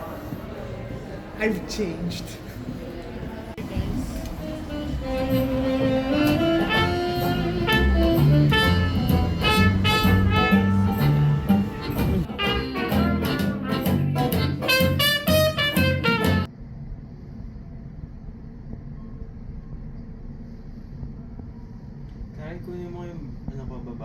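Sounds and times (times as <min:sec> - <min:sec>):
jazz music with saxophone and brass: 0:03.9 - 0:16.5.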